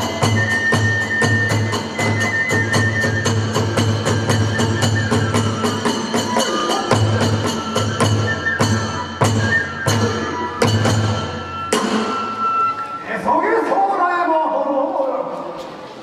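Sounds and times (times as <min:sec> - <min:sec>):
drum strokes: 0:00.0 - 0:12.6
ringing hand cymbals: 0:00.0 - 0:13.1
thin flute line: 0:00.0 - 0:13.1.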